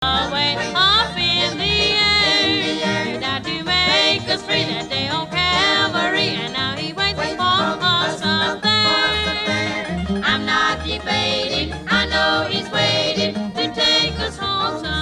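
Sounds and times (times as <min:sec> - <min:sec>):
sliding synth melody: 0:08.8 - 0:14.1.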